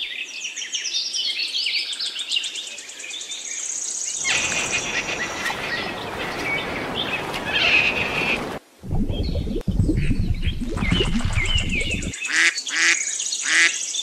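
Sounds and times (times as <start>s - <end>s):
outdoor ambience hiss: 2.7s - 8.9s
birds trilling: 4.2s - 8.6s.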